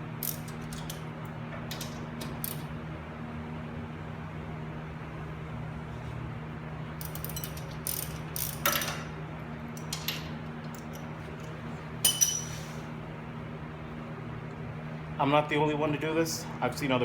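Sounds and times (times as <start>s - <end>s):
steady low hum: 0.0s - 17.0s
metal hand tools clinking: 12.0s - 12.6s.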